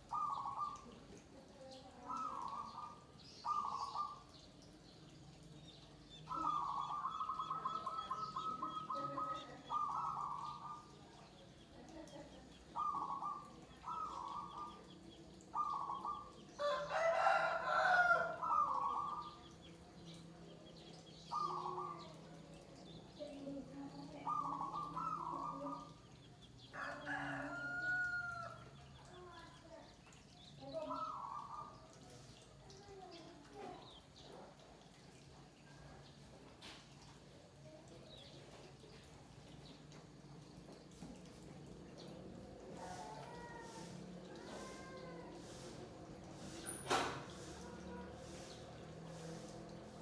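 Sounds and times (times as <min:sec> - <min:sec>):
doves cooing: 0:00.0 - 0:01.2, 0:01.9 - 0:04.3, 0:06.2 - 0:11.1, 0:12.5 - 0:19.6, 0:21.2 - 0:22.5, 0:23.6 - 0:26.1
rooster crowing: 0:16.6 - 0:18.5, 0:26.8 - 0:28.6.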